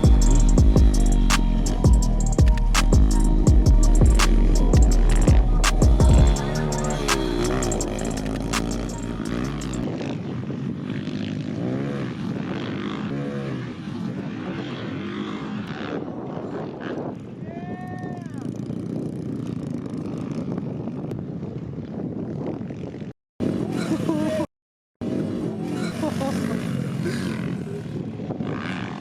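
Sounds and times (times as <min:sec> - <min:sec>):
background music: 0:00.0 - 0:09.8
dirt bike engines revving: 0:00.0 - 0:21.1, 0:22.7 - 0:29.0.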